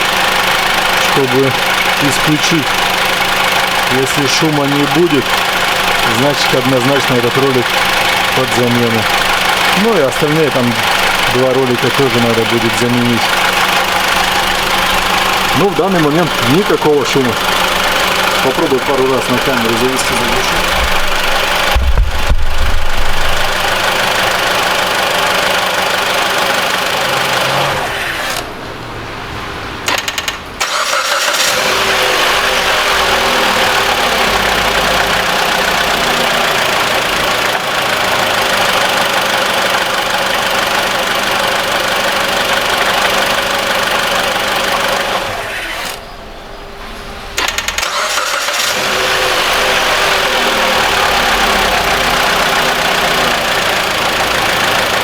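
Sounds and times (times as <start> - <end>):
starter cranking engine: 0.0 - 28.6, 29.9 - 46.3, 47.3 - 55.0
car engine running: 0.0 - 55.0.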